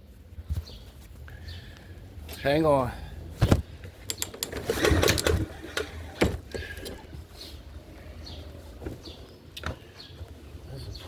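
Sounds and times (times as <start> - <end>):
knocks and clicks on lawn mower: 3.4 - 7.1.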